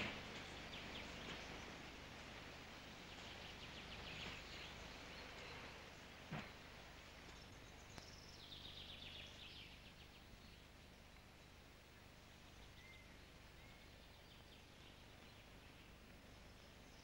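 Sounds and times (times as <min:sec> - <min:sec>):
faint songbird song: 0:00.0 - 0:17.0
steady hiss and low hum: 0:00.0 - 0:17.0.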